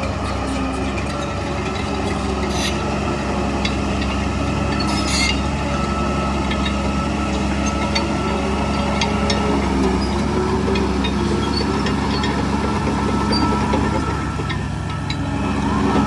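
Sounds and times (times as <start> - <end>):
heavy diesel machinery running: 0.0 - 16.0
short metallic clanks: 3.6 - 5.5.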